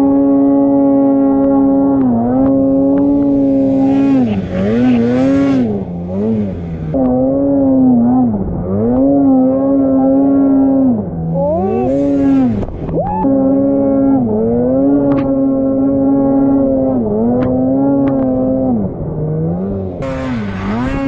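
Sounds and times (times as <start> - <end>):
snowmobile engine revving: 0.0 - 21.0.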